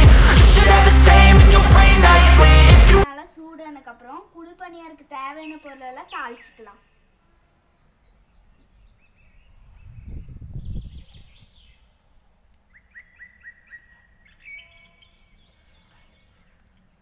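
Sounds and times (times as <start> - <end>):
small birds chirping: 5.1 - 17.0.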